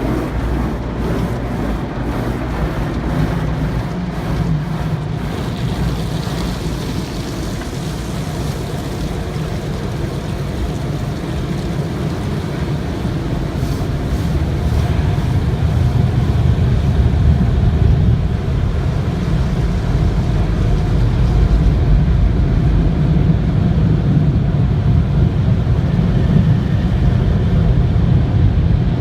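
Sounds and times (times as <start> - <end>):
car wash machinery rumbling: 0.0 - 29.0.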